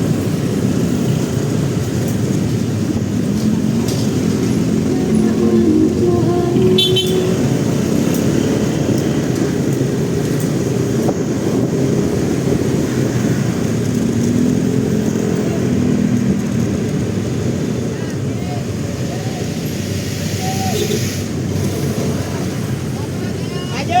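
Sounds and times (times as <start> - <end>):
motorcycle engine and road rumble: 0.0 - 5.1, 7.0 - 23.4
traffic vehicles: 0.0 - 24.0
short high beep: 4.9 - 8.0.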